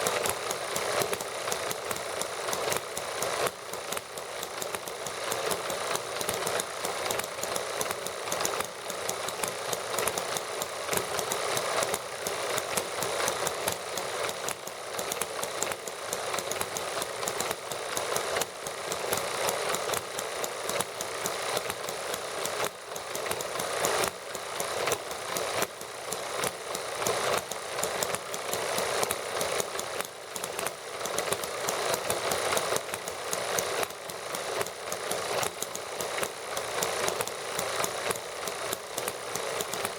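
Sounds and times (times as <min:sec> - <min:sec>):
model gasoline engines clattering: 0:00.0 - 0:39.9.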